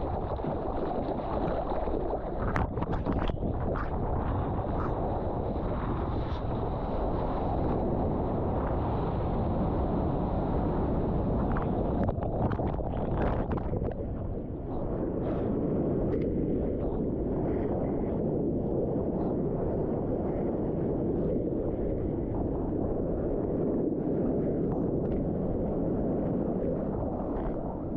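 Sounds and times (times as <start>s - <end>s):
moving water: 0.0s - 7.8s, 9.8s - 15.7s
wind buffeting microphone: 0.0s - 27.9s.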